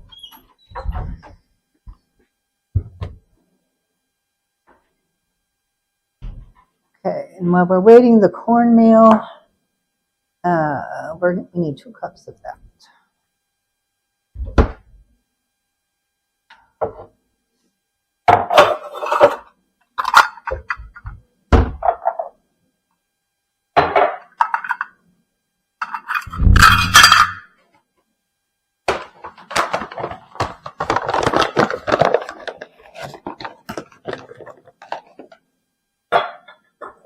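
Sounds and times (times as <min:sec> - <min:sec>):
clatter and scraping: 0:18.5 - 0:20.3.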